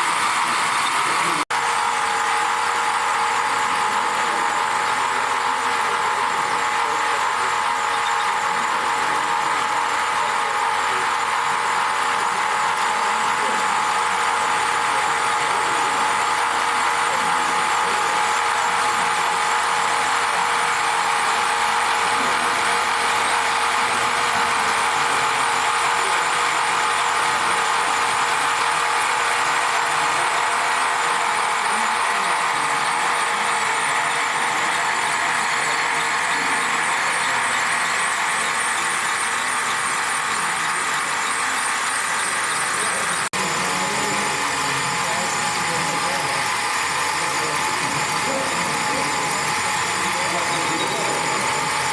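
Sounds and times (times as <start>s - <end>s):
faint voices: 0.0s - 51.9s.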